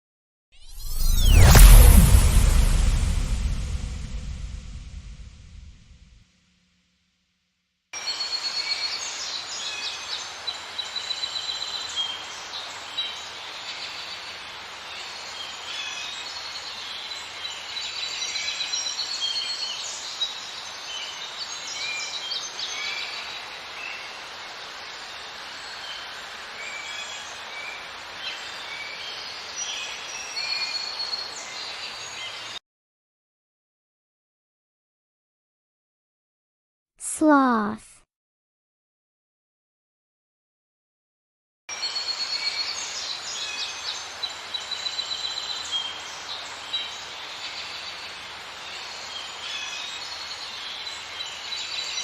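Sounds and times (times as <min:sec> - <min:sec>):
outdoor ambience hiss: 0:08.0 - 0:32.6, 0:41.7 - 0:52.0.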